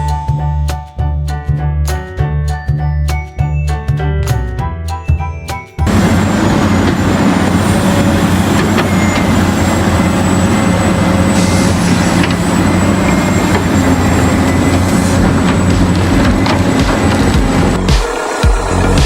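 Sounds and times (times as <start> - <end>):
vehicle engine running: 5.8 - 19.0.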